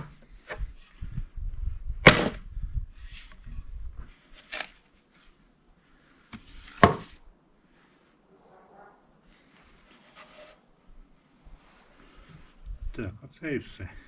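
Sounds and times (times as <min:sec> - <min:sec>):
wood pieces knocking: 0:02.0 - 0:02.4.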